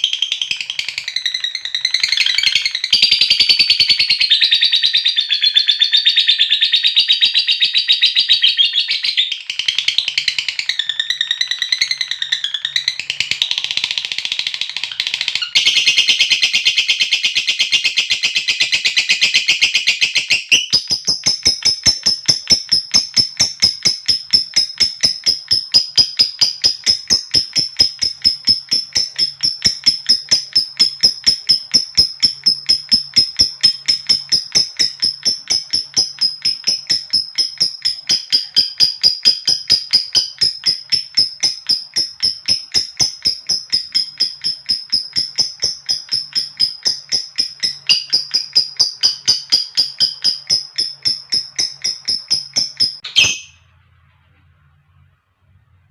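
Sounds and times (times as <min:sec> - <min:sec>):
lovebird chattering and clicking: 0:00.0 - 0:04.5, 0:09.4 - 0:53.6.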